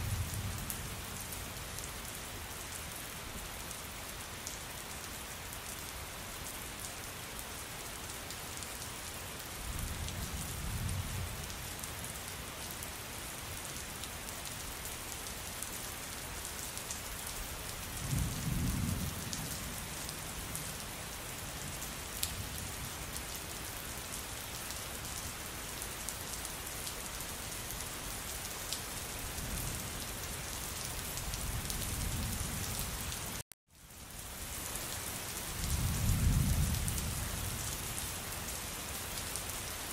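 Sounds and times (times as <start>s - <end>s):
steady rain: 0.0s - 39.9s
low rumbles of thunder: 18.0s - 20.8s, 35.5s - 37.7s.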